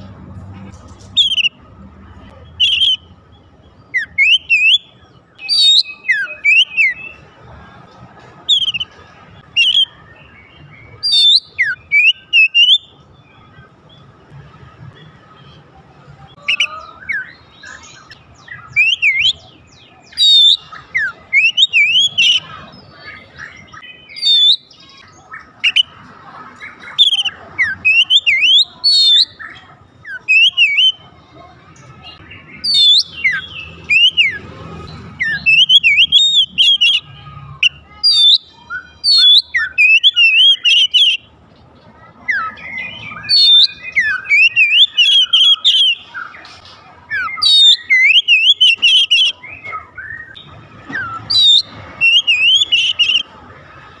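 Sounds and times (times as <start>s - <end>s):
bird singing whistles and chirps: 1.2s - 1.6s, 2.3s - 7.2s, 8.5s - 13.7s, 16.3s - 25.9s, 26.6s - 31.0s, 32.0s - 34.4s, 35.2s - 37.0s, 37.6s - 41.3s, 42.3s - 46.5s, 47.1s - 53.3s.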